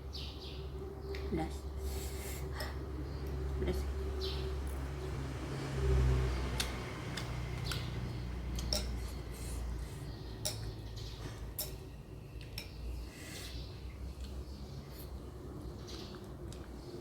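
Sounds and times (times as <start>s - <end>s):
utensil clicks and chewing: 6.6s - 9.0s, 14.1s - 14.5s, 15.8s - 17.0s.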